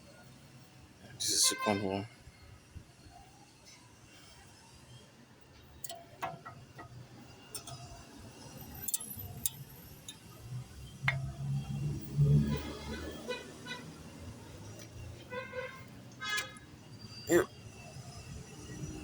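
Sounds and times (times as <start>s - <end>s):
small metal clicks and clinks: 5.5s - 11.3s, 16.1s - 16.7s.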